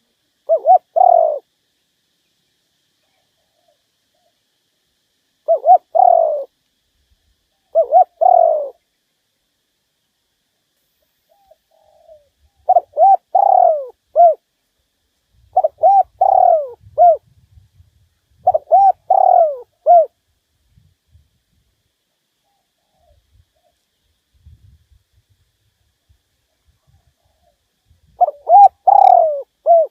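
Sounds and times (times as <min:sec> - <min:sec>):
dove cooing: 0:00.0 - 0:01.5, 0:05.4 - 0:06.6, 0:07.6 - 0:08.8, 0:11.3 - 0:14.4, 0:15.5 - 0:17.3, 0:18.4 - 0:20.2, 0:26.8 - 0:29.9.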